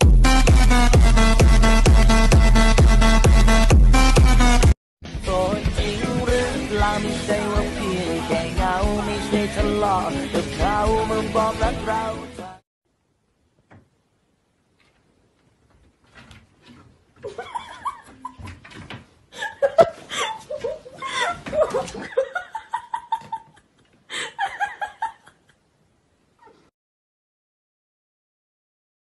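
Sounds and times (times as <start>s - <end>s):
laughter: 17.2s - 18.6s, 19.4s - 25.6s.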